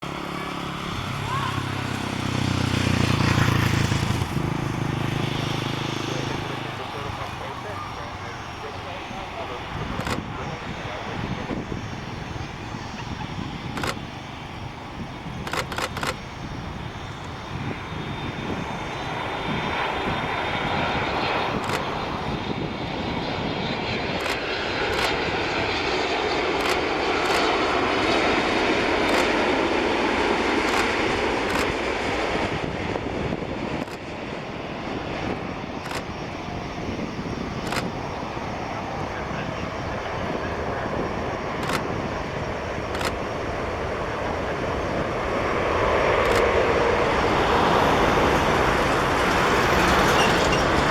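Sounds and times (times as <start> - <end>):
jet engines rushing: 0.0 - 50.9
sharp clicks: 9.7 - 10.8, 12.0 - 17.6, 21.3 - 22.5, 24.0 - 32.3, 33.7 - 34.3, 35.8 - 36.5, 37.1 - 38.6, 41.6 - 42.0, 42.8 - 43.4, 46.1 - 46.7.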